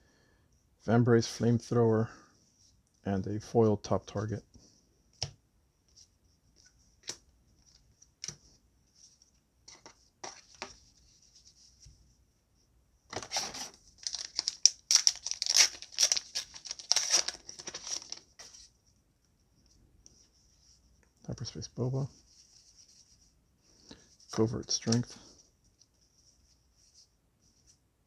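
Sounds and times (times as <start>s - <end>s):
wrapper crinkling and tearing: 13.2s - 18.5s.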